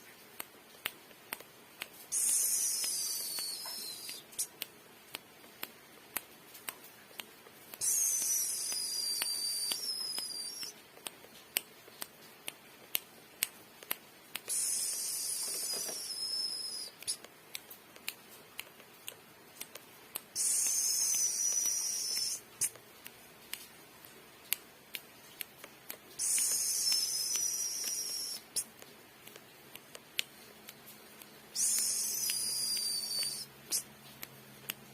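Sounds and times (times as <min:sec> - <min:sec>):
sharp bird clicks: 0:02.1 - 0:04.7, 0:26.2 - 0:28.8, 0:31.2 - 0:33.9.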